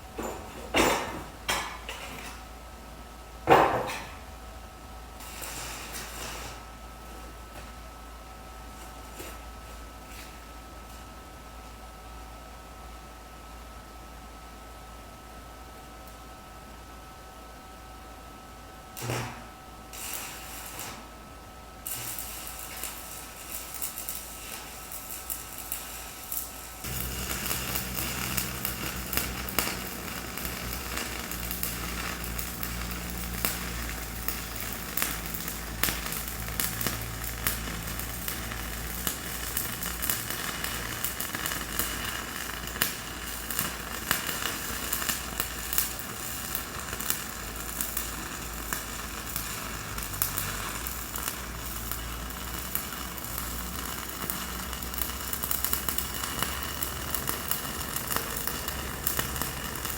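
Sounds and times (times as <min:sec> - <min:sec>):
electric arc welding crackling: 0:05.2 - 0:06.7, 0:19.0 - 0:21.2, 0:21.8 - 0:59.9
low hum: 0:26.9 - 0:40.9.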